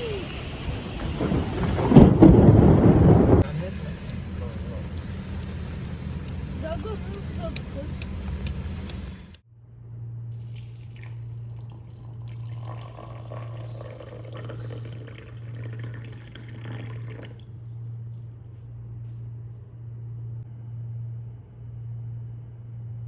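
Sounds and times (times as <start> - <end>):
steady low hum: 0.0 - 23.0
water running and dripping: 10.4 - 18.1.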